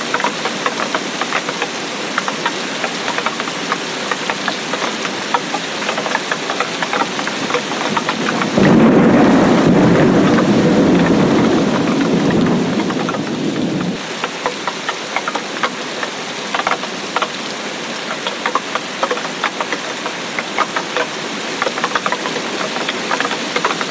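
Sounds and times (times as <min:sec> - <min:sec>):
steady rain: 0:00.0 - 0:23.9
thunder rumbling: 0:07.3 - 0:14.0.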